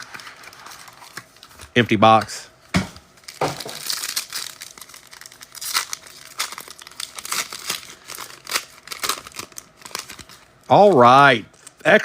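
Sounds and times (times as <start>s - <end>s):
plastic wrapping crinkling: 0.0s - 1.7s, 3.1s - 10.7s.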